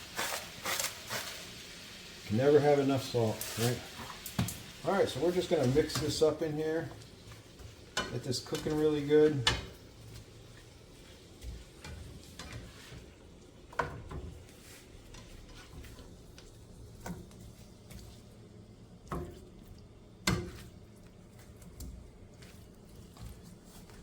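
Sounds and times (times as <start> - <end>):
utensil scraping a pan: 0.0 - 1.6, 11.0 - 13.2, 14.5 - 16.1
frying sizzle: 0.0 - 24.0.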